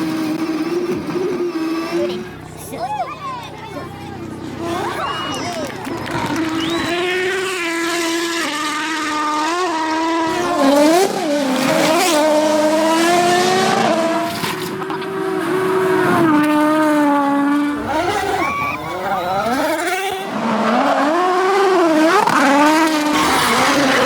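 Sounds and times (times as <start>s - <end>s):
rally car engine revving: 0.0s - 3.1s, 3.9s - 24.0s.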